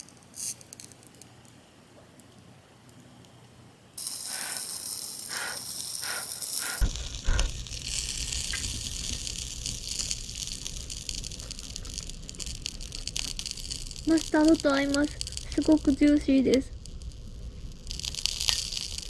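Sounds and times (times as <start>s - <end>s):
food sizzling on griddle: 0.0s - 1.2s, 4.0s - 19.0s
low rumble: 6.8s - 18.2s.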